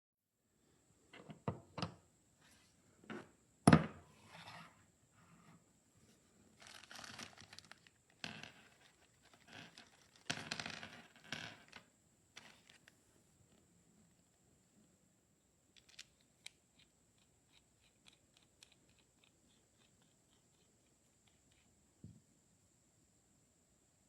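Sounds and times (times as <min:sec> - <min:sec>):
scraping and rustling: 0:04.2 - 0:12.9.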